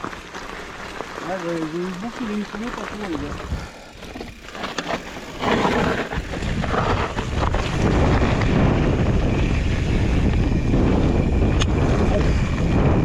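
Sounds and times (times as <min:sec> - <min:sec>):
low rumble from bike ride: 0:00.0 - 0:13.0
wind rushing over microphone: 0:05.4 - 0:13.0.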